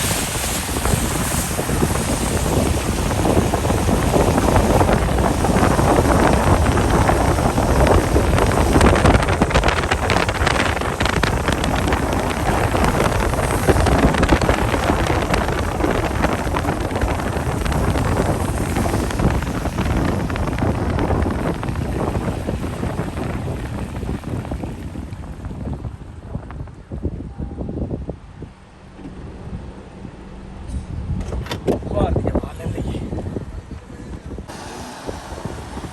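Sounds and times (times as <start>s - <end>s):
heavy rain: 0.0s - 25.7s, 34.5s - 35.9s
wind buffeting microphone: 0.0s - 35.9s.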